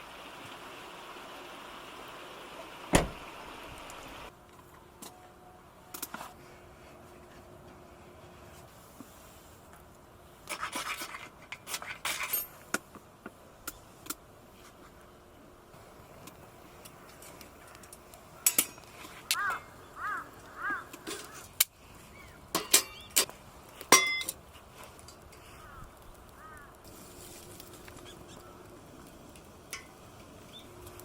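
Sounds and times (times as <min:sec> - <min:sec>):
steady hiss: 0:00.0 - 0:04.3, 0:15.7 - 0:31.0
rustling and scraping: 0:10.4 - 0:13.1, 0:20.6 - 0:25.8, 0:26.8 - 0:28.6.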